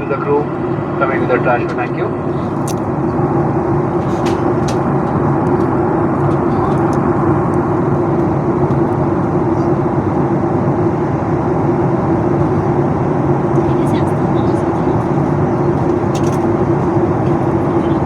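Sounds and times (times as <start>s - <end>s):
airliner cabin engine and airflow rush: 0.0s - 18.0s
constant low hum: 0.0s - 18.0s.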